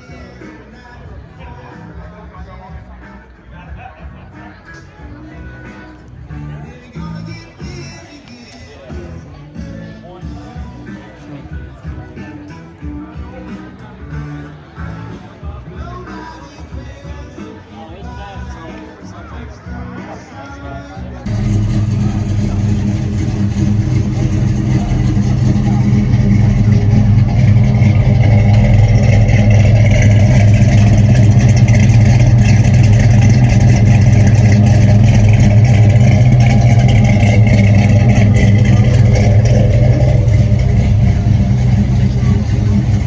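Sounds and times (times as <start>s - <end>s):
loud car engine running: 21.3s - 43.0s.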